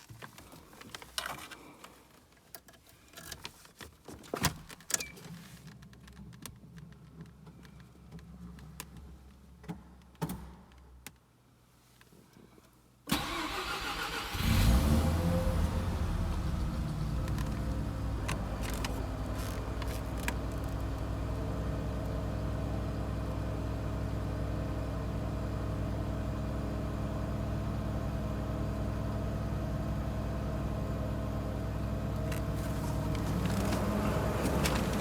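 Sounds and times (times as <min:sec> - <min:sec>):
starter motor cranking: 0:13.1 - 0:14.9, 0:32.3 - 0:35.0.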